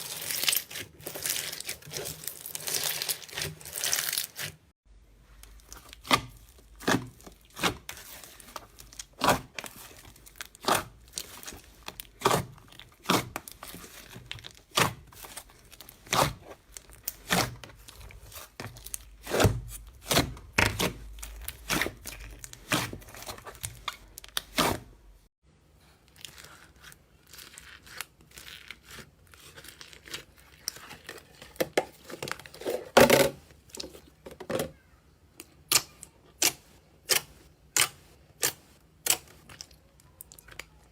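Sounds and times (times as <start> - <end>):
slime crackling: 0.0 - 4.5, 5.4 - 24.9.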